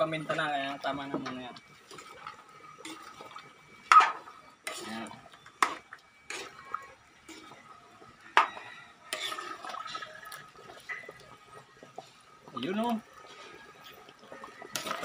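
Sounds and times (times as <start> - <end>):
utensil scraping metal wok: 1.8 - 7.6, 8.4 - 11.1.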